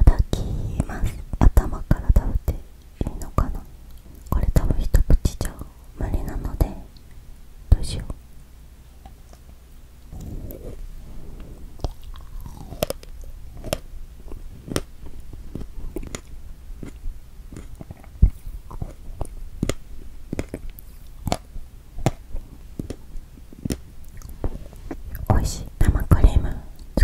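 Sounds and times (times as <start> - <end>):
close-miked chewing: 10.1 - 10.8, 11.4 - 25.3.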